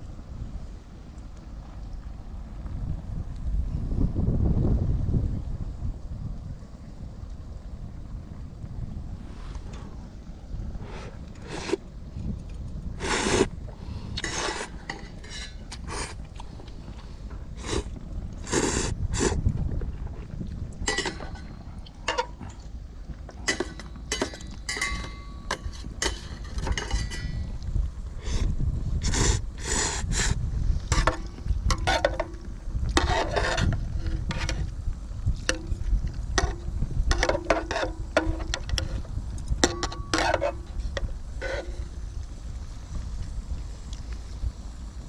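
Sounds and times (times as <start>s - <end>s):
wind rumbling on microphone: 0.0s - 45.0s
cookware clinking and scraping: 14.2s - 15.9s, 20.9s - 22.4s, 23.4s - 27.5s, 30.9s - 32.4s, 36.4s - 39.0s, 39.6s - 40.7s.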